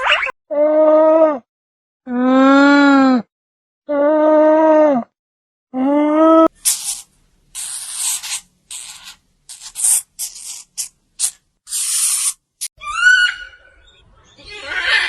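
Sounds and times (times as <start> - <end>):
hissing bursts: 6.6 - 12.7.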